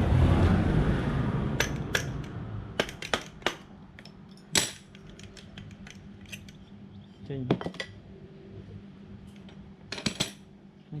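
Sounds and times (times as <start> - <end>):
rushing noise: 0.0 - 2.8
metal parts clinking: 1.6 - 8.0, 9.3 - 10.5.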